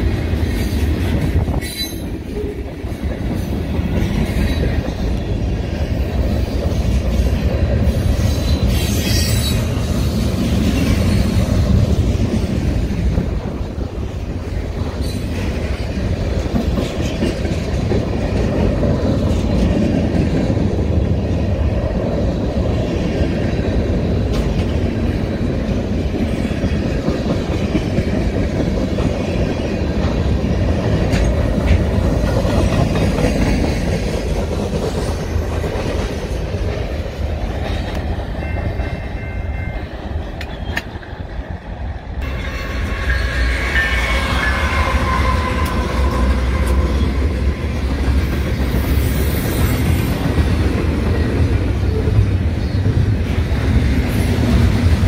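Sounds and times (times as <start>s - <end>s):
freight train wheels rumbling: 0.0s - 55.0s
wheels clicking over rail joints: 25.9s - 38.9s.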